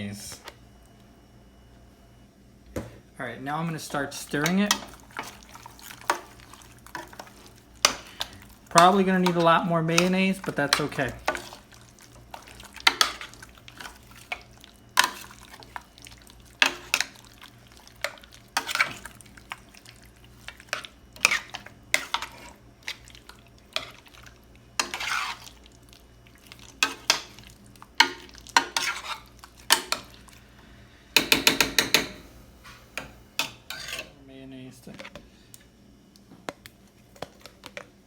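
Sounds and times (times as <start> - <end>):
utensil scraping and knocking dish: 31.2 - 32.3.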